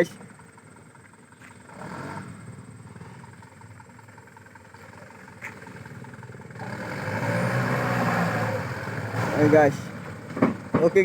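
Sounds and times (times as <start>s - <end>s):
truck engine under load: 0.0s - 11.0s.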